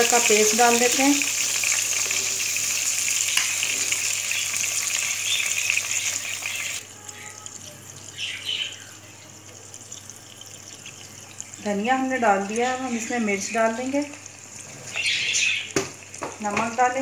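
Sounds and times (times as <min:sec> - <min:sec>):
paste sizzling in hot oil: 0:00.0 - 0:16.9.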